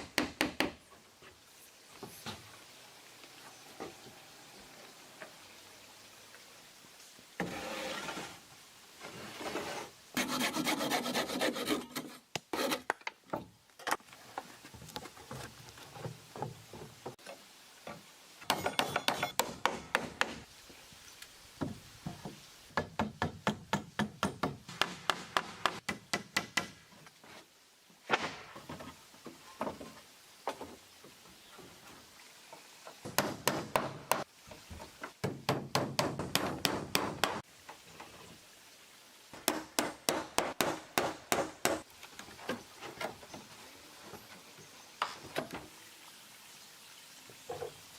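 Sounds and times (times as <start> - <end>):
hand tools scraping wood: 7.4 - 8.4, 9.0 - 13.0.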